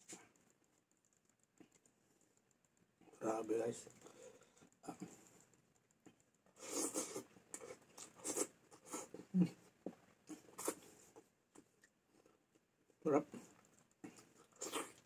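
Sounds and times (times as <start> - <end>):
person chewing: 6.1 - 9.4, 10.2 - 12.4, 14.0 - 15.0.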